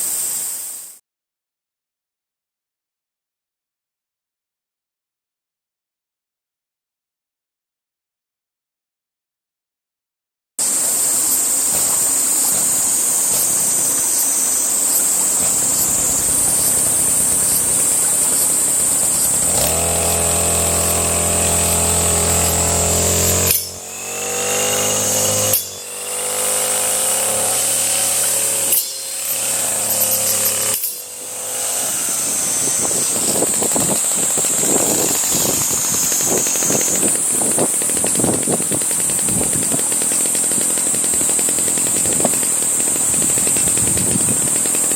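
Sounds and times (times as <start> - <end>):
two-stroke power tool running: 10.6 - 44.9.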